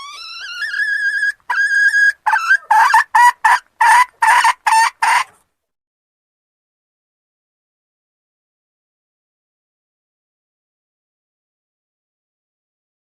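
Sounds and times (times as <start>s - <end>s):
junglefowl hen calling: 0.0s - 5.4s.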